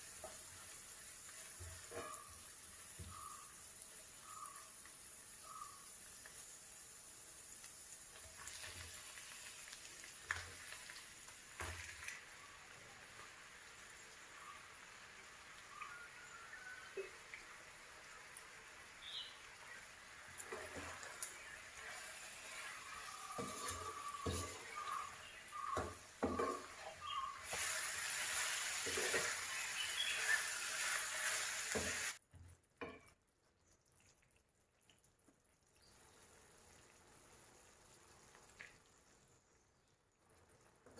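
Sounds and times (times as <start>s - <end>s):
food sizzling in a pan: 0.0s - 33.0s, 35.8s - 38.8s
stirring or scraping in pan: 19.7s - 32.2s
stirring knocks on pan: 23.0s - 26.9s.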